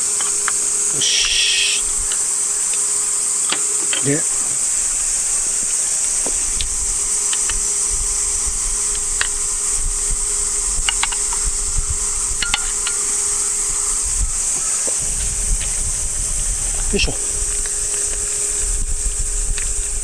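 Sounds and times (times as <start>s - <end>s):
cicada chorus: 0.0s - 20.0s.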